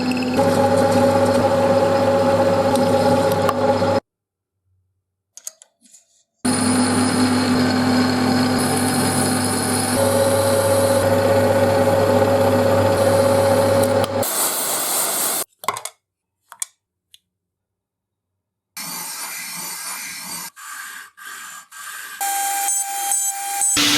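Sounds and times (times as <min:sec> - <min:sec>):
small electric power tool on metal: 0:06.5 - 0:15.4.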